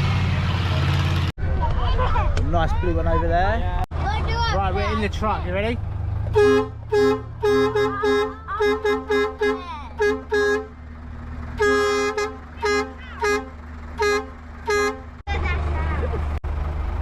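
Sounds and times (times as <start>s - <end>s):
truck engine idling: 4.0s - 17.0s
truck horn blasts: 6.3s - 10.9s, 11.5s - 15.2s.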